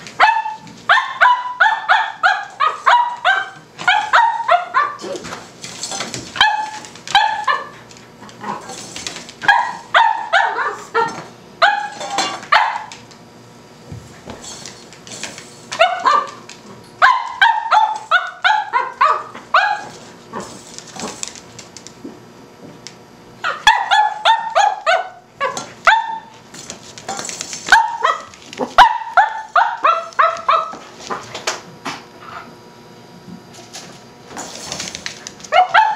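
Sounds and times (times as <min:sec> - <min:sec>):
puppy yapping: 0:00.2 - 0:05.2, 0:06.4 - 0:07.8, 0:09.4 - 0:12.9, 0:15.7 - 0:16.4, 0:17.0 - 0:20.0, 0:23.4 - 0:26.4, 0:27.7 - 0:30.8, 0:35.5 - 0:35.9.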